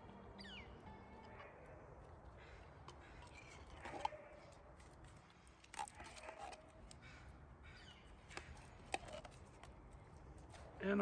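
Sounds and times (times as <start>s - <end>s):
faint bird calls: 6.2s - 8.8s.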